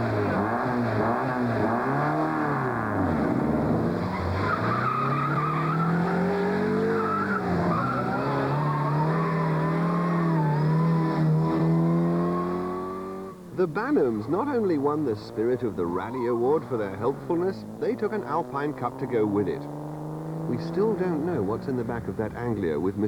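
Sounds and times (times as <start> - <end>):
rally car engine revving hard: 0.0 - 13.5, 14.2 - 22.3
tyres squealing: 4.0 - 11.1, 15.6 - 19.4.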